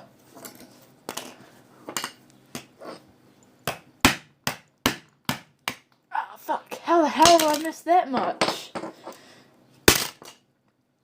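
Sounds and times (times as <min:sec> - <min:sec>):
phone being struck and cracking: 0:09.9 - 0:10.3.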